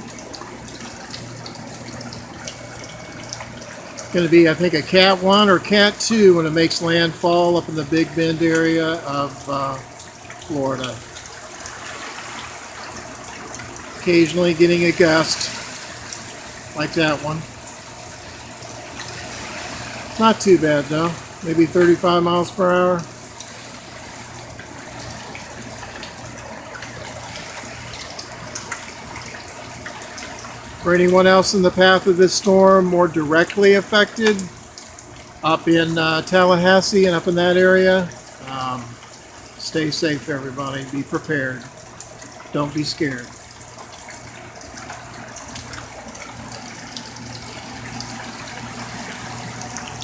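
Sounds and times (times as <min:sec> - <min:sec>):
steady low hum: 0:00.0 - 0:29.3
heavy rain falling: 0:00.0 - 0:41.6
drips and splashes: 0:00.0 - 0:50.0.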